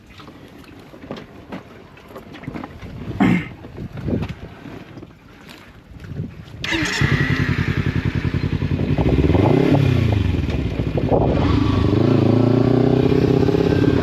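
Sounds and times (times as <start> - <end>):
motorcycle engine revving: 6.6 - 14.0.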